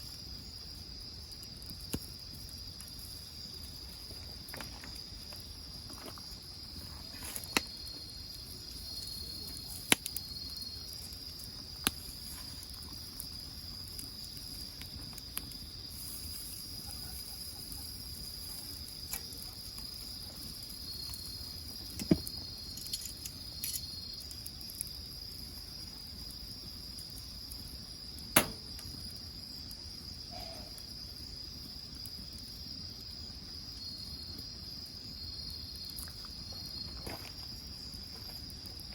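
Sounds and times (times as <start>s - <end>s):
wood fire popping and crackling: 0.0s - 30.2s, 30.9s - 38.9s
crickets chirring: 0.0s - 38.9s
insect trills: 0.0s - 38.9s.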